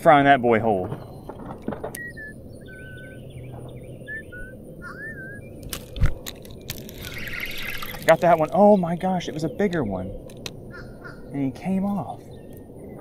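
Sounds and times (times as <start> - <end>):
low outdoor rumble: 0.0 - 13.0
birds whistling and chirping: 0.9 - 5.9, 6.6 - 13.0
fishing rod clicks: 5.6 - 8.6, 10.2 - 10.6.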